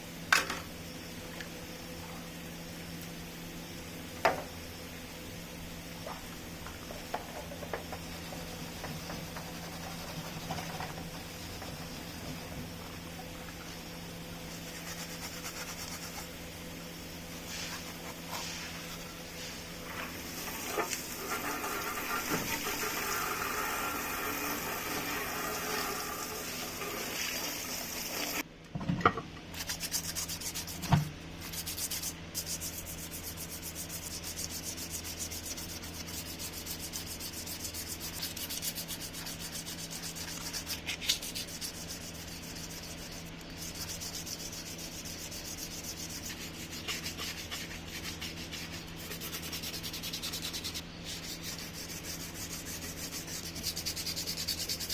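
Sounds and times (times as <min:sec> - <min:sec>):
sanding scratchy rubbing: 0:09.5 - 0:10.5, 0:14.5 - 0:16.4, 0:29.6 - 0:54.9.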